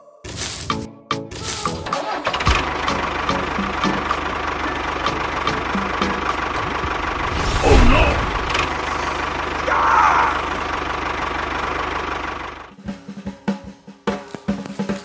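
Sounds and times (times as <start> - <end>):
music: 0.0 - 6.9, 12.7 - 15.0
small engine knocking: 1.4 - 7.0, 10.6 - 12.8.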